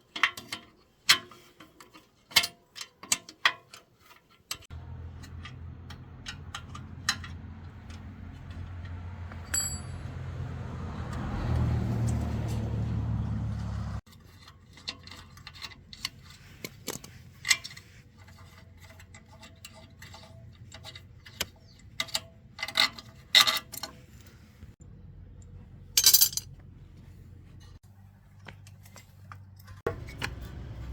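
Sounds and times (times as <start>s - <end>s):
metal tools clinking: 5.1s - 10.2s, 25.9s - 26.6s.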